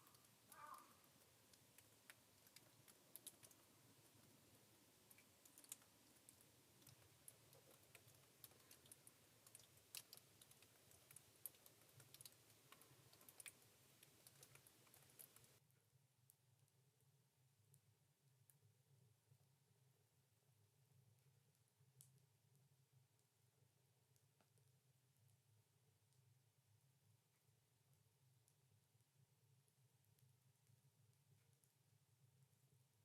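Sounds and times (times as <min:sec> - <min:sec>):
faint irregular clicks: 0:00.0 - 0:15.6, 0:21.4 - 0:23.4, 0:24.1 - 0:25.4.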